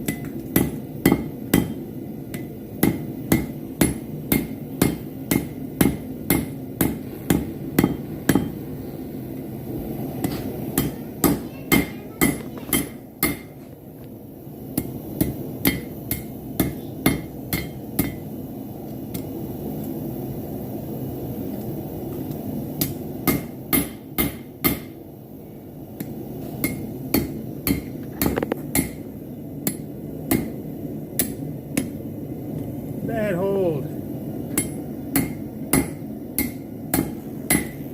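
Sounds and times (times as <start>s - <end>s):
hammer striking hot metal: 0.0s - 8.7s, 10.2s - 13.7s, 14.6s - 18.3s, 19.0s - 19.5s, 22.2s - 25.0s, 26.0s - 32.1s, 34.4s - 37.9s
low forge burner noise: 0.0s - 37.9s.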